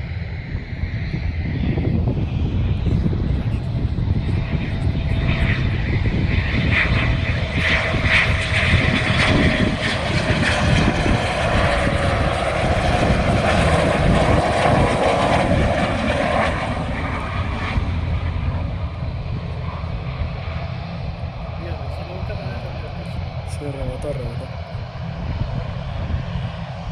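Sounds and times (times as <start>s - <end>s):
aircraft engines rumbling: 0.0s - 26.9s.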